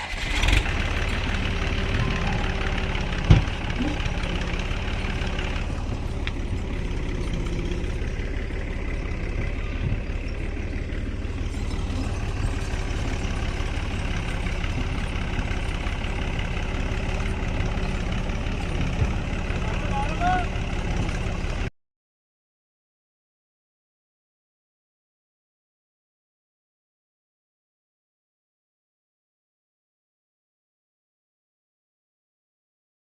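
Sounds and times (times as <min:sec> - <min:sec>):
tractor engine running: 0:00.0 - 0:21.7.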